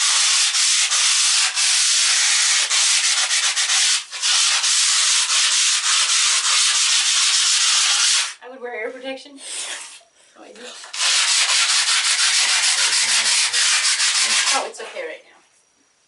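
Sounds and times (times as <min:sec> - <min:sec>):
power sander on earthen floor: 0:10.9 - 0:14.6.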